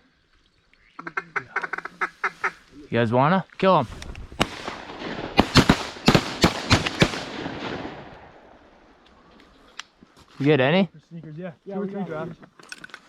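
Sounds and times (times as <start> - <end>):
echoing shotgun shots: 4.3 - 8.7.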